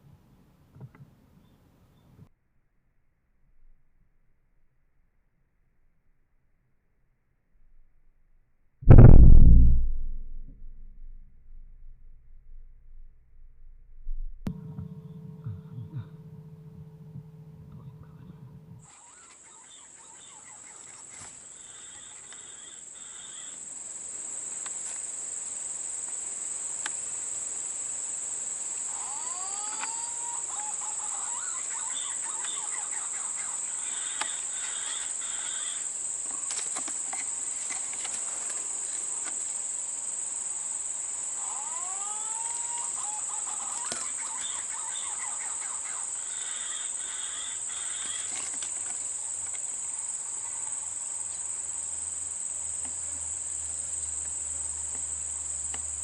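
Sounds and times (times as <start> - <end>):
insects chirring: 14.5 - 56.0.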